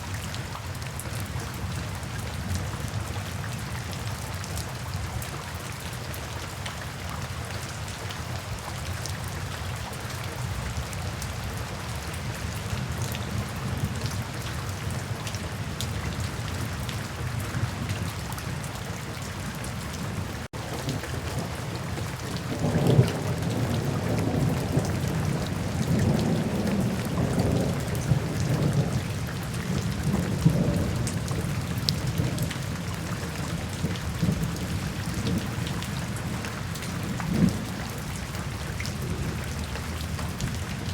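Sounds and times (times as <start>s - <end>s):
steady rain falling: 0.0s - 40.9s
low rolling thunder: 20.1s - 36.4s, 37.0s - 37.9s.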